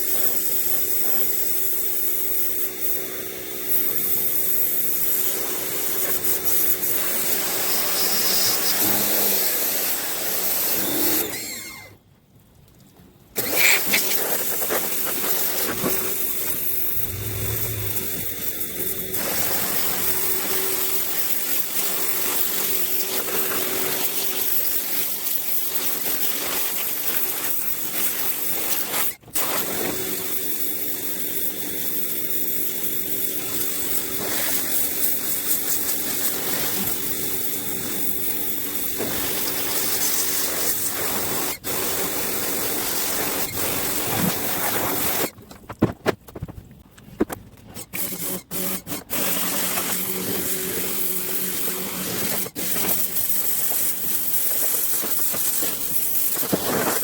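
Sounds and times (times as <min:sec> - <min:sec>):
pressure washer spray hissing: 0:13.6 - 0:24.6, 0:48.2 - 0:57.0.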